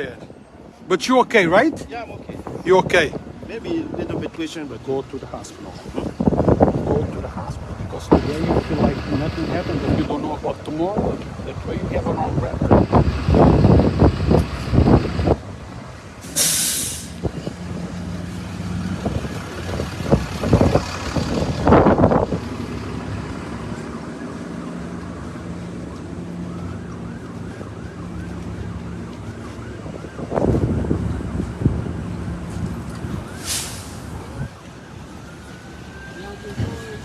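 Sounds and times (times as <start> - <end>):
traffic: 0.0 - 37.0
short sharp hiss: 16.2 - 17.2, 33.4 - 34.1
faint wavering siren: 22.8 - 37.0.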